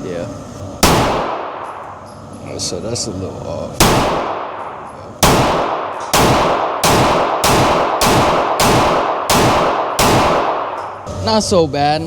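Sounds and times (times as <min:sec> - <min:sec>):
handgun shots echoing indoors: 0:00.8 - 0:01.9, 0:03.8 - 0:11.0.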